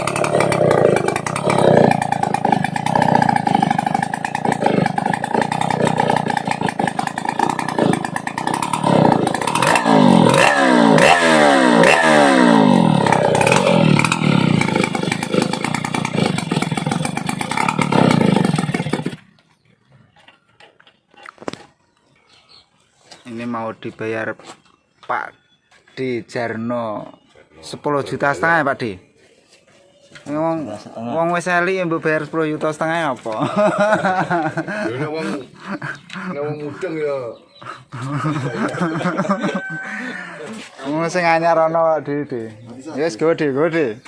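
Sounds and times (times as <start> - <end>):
chainsaw engine revving: 0.0 - 19.4, 33.4 - 36.3, 38.2 - 40.6.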